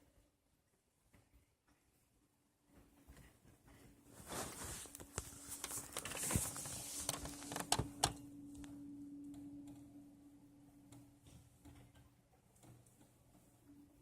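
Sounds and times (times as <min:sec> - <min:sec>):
phone handling rustle: 0:04.4 - 0:08.2
low hum: 0:08.2 - 0:12.3.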